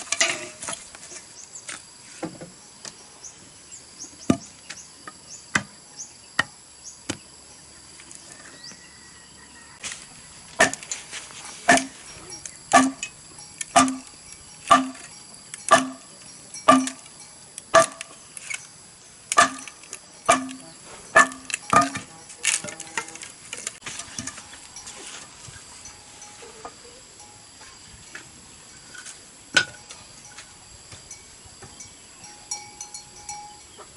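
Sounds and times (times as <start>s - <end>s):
hand tool striking bamboo: 9.8s - 12.0s, 12.7s - 18.6s, 19.3s - 24.6s.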